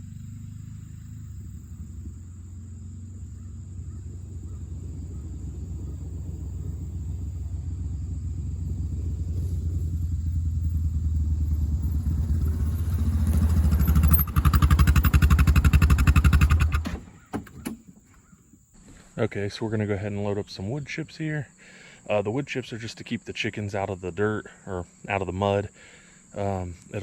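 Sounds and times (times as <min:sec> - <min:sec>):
small vehicle engine running: 0:00.0 - 0:18.2.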